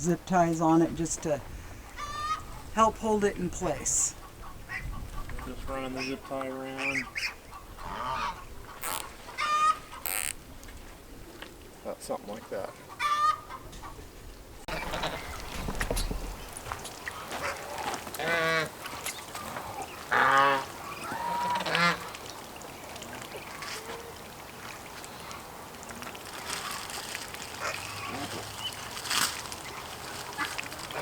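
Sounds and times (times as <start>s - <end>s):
geese honking: 1.8s - 4.1s, 6.0s - 10.3s, 12.9s - 13.6s, 14.7s - 15.4s, 17.1s - 22.2s.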